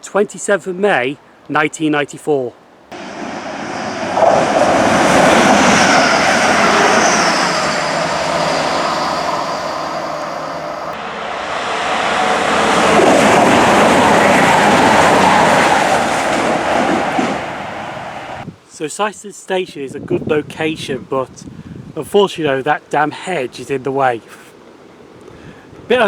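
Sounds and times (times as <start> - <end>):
train wheels on rails: 2.9 - 18.4.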